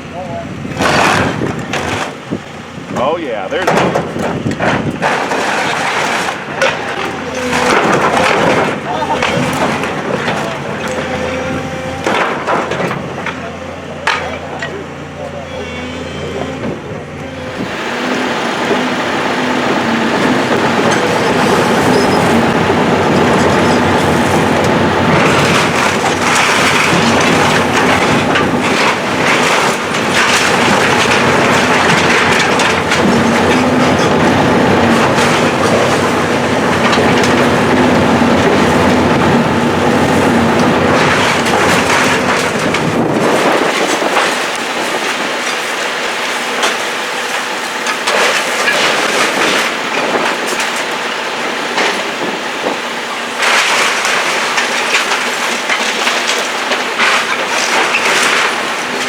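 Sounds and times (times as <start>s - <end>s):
demolition machinery engine hum: 0.0s - 59.0s
debris crunching and clanking: 0.6s - 59.0s.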